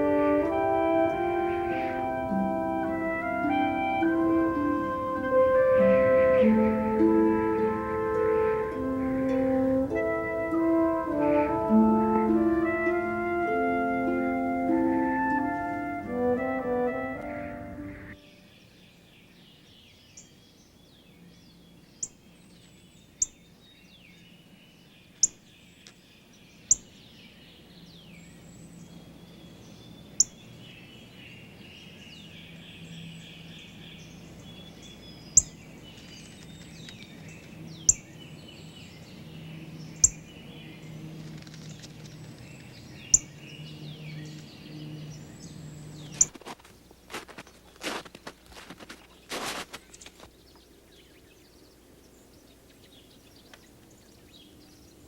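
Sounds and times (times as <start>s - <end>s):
small birds chirping: 0.0s - 11.8s, 17.2s - 55.0s
organ music: 0.0s - 18.5s.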